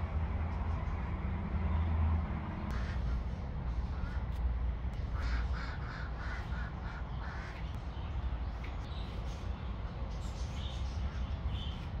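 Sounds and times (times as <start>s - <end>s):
steady low rumble: 2.4s - 12.0s.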